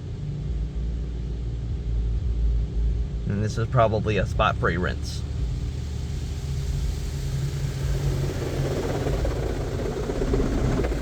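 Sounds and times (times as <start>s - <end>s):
low steady hum: 0.0s - 11.0s
water spraying onto car: 5.2s - 11.0s.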